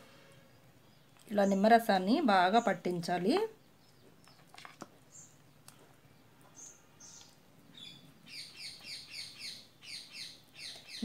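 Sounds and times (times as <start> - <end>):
bird chirping: 0.2 - 11.0.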